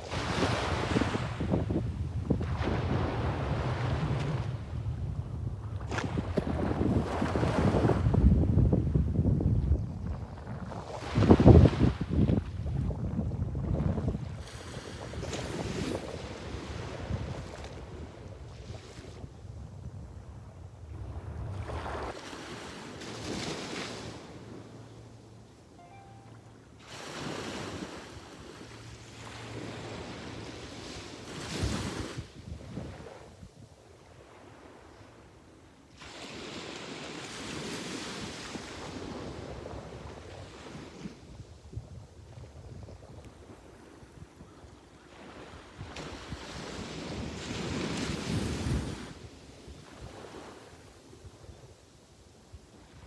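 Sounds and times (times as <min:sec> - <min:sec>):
sea waves breaking: 0:00.0 - 0:04.8, 0:21.0 - 0:33.3
sea waves breaking on beach: 0:00.0 - 0:04.9, 0:05.8 - 0:08.4, 0:14.1 - 0:19.4, 0:21.0 - 0:24.9, 0:25.8 - 0:41.3, 0:43.4 - 0:51.4.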